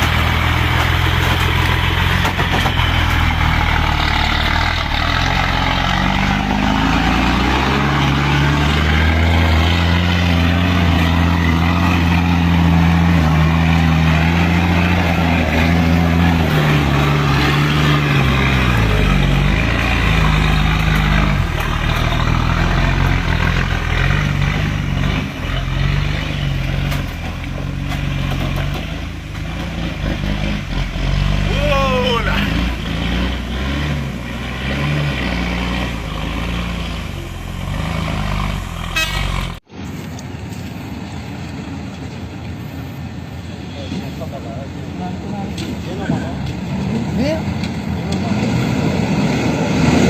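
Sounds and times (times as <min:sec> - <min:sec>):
truck diesel engine running: 0:00.0 - 0:39.7.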